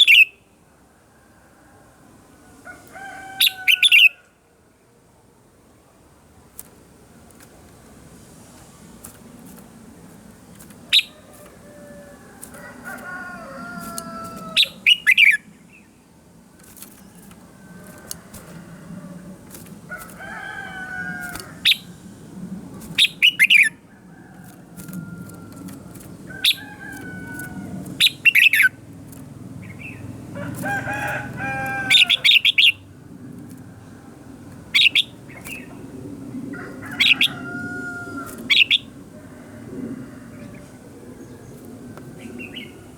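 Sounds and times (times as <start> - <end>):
roosters crowing: 1.0 - 4.5, 10.8 - 15.4, 16.7 - 42.9
birds whistling: 10.9 - 11.3, 13.6 - 15.9, 20.8 - 22.0, 22.9 - 23.8, 26.3 - 28.8, 30.8 - 32.8, 34.7 - 35.7, 38.5 - 38.9.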